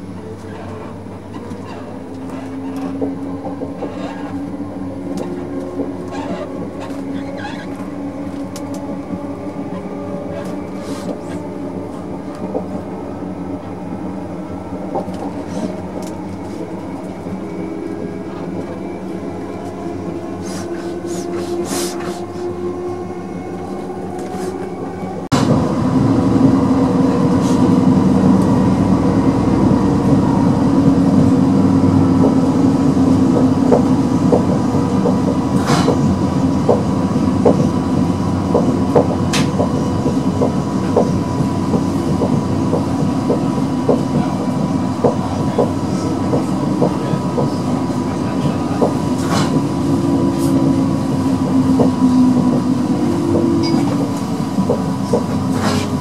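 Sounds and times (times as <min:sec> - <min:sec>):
train interior rumble: 0:00.0 - 0:56.0.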